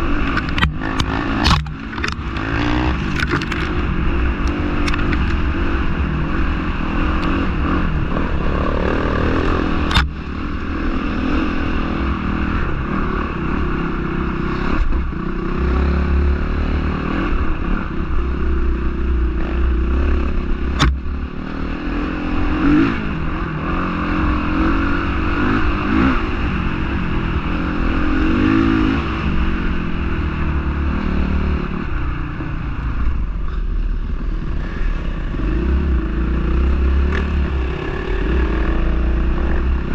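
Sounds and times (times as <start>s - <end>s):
dirt bike engine revving: 0.0s - 31.8s, 34.3s - 39.9s
sharp clicks: 0.2s - 5.4s, 9.7s - 10.1s.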